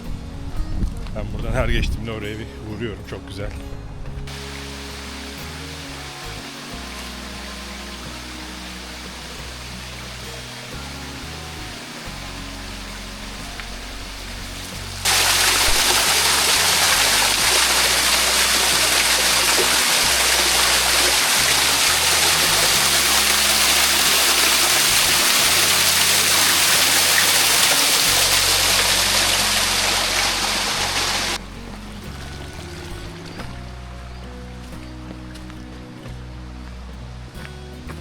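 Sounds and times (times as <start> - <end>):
waterfall rushing: 4.3 - 34.6.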